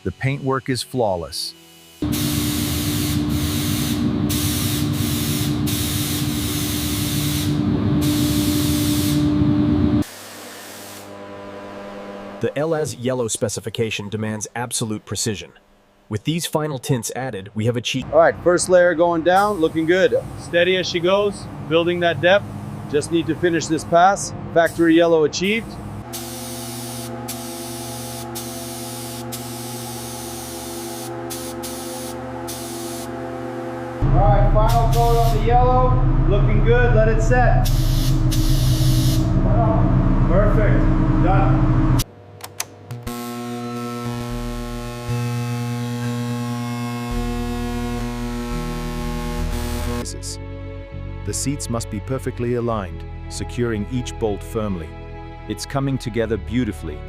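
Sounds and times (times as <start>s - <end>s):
spray gun hissing: 1.9s - 9.3s, 19.4s - 20.6s, 25.5s - 33.1s, 34.7s - 35.4s, 37.6s - 39.3s
constant low hum: 18.0s - 50.2s.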